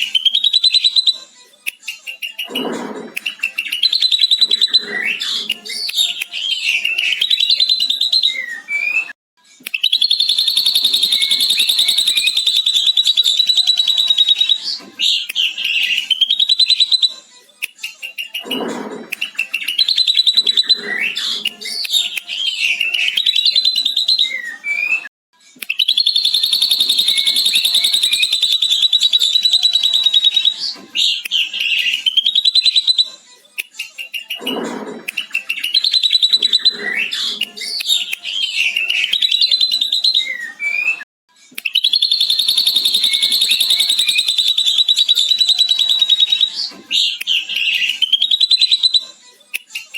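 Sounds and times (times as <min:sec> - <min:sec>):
bird singing with long trills: 0:09.8 - 0:17.1, 0:25.8 - 0:33.0, 0:41.7 - 0:49.0.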